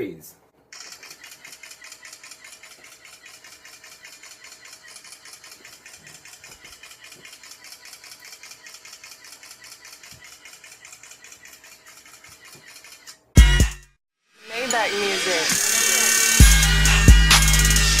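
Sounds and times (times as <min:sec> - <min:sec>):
camera shutter clicks in burst: 0:00.7 - 0:13.2.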